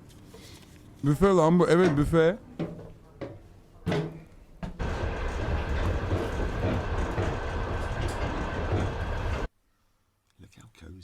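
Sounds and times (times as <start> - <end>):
train carriage rumble: 4.8 - 9.5.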